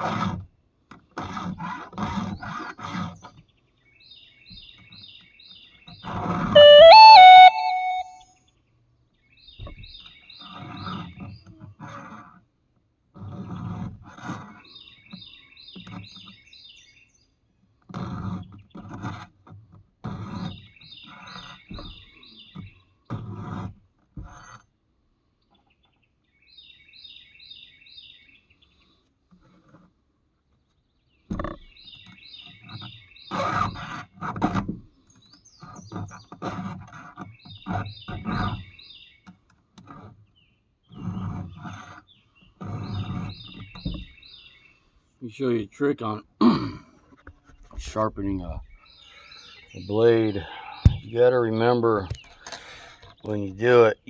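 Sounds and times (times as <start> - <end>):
bird chirping: 6.6 - 8.1.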